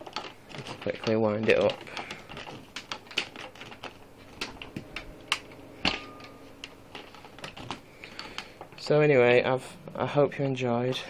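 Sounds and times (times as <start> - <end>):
vacuum cord clicking and tapping: 0.0 - 8.9.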